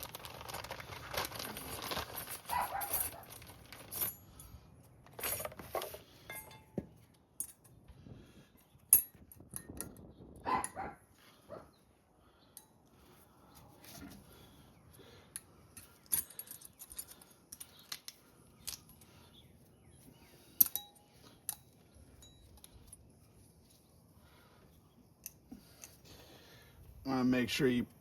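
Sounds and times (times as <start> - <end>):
small metallic clicks and clinks: 8.8 - 10.8, 15.3 - 19.4, 20.5 - 23.2, 25.2 - 26.1.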